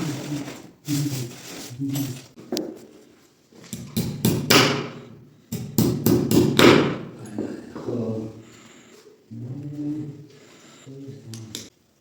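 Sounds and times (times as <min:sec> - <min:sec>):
hammer knocking: 0:03.8 - 0:07.2.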